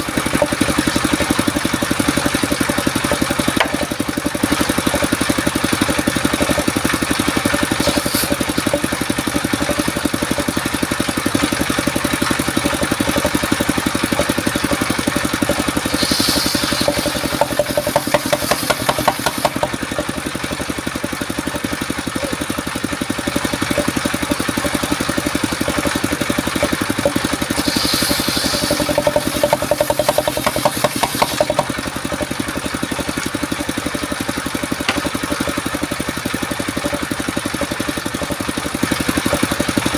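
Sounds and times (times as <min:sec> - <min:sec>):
sawmill engine running: 0:00.0 - 0:39.9
brief hiss: 0:16.0 - 0:17.4, 0:27.6 - 0:28.9.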